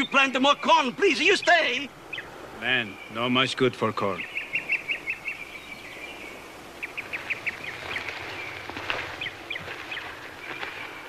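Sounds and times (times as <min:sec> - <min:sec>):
birds chirping: 0:00.0 - 0:11.0
low outdoor hiss: 0:00.0 - 0:11.0.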